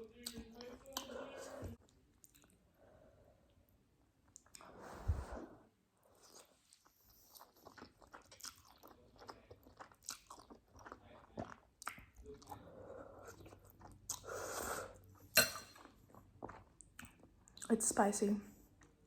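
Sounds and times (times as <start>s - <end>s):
person chewing and slurping noodles: 6.1s - 17.7s.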